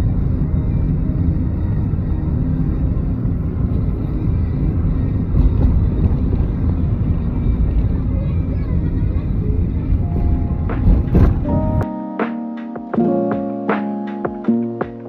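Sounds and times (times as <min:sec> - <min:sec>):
car driving rumble: 0:00.0 - 0:11.8.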